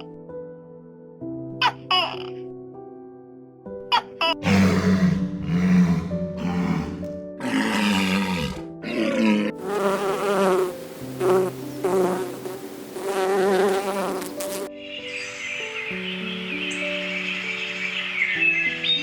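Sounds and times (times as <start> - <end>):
background music: 0.0 - 19.0
animal calls: 4.4 - 9.6
insect-like buzzing: 7.4 - 14.8.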